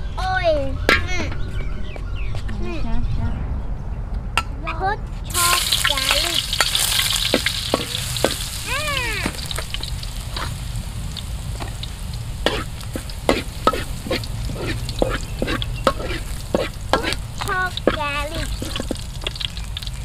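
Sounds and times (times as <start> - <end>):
food sizzling in hot oil: 5.3 - 20.0
spatula scraping a pan: 9.2 - 10.6, 12.4 - 19.5.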